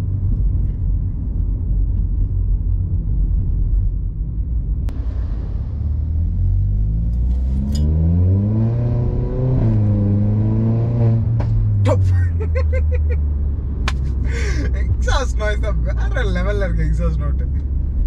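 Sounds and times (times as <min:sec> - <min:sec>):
turbocharged car engine: 0:04.7 - 0:18.0.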